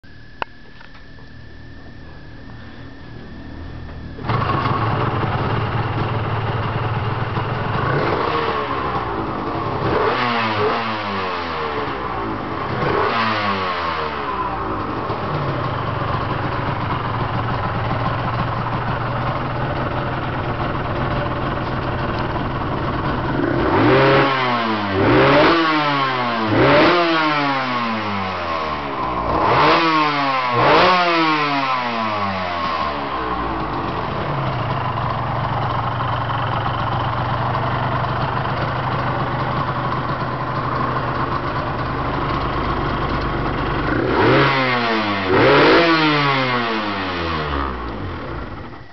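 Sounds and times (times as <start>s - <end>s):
two-stroke engine idling: 1.1s - 45.9s, 46.6s - 48.9s
engine revving: 4.2s - 15.9s, 22.8s - 35.1s, 41.0s - 48.8s.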